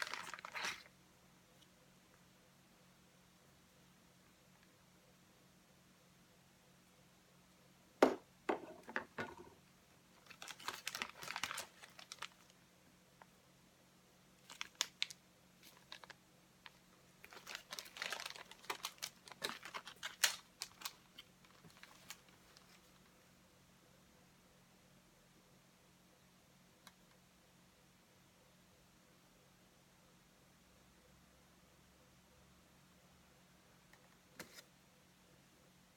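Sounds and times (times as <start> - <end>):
crinkly rustling: 0.0 - 0.9, 10.1 - 12.6, 14.4 - 23.1.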